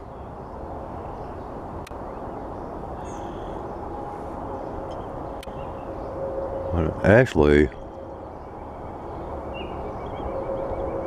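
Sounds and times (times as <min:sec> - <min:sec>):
faint bird chirps: 0:01.1 - 0:11.0
low rumble: 0:03.2 - 0:11.0.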